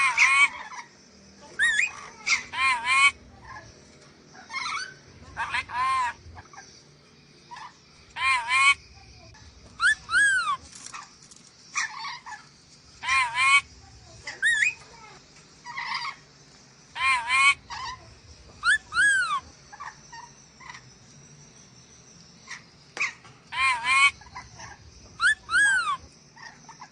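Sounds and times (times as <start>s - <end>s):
parrot squawking: 0.0s - 0.9s, 1.6s - 3.2s, 4.4s - 6.5s, 7.5s - 8.8s, 9.8s - 10.6s, 13.0s - 13.7s, 17.0s - 18.0s, 18.6s - 20.8s, 22.5s - 26.8s.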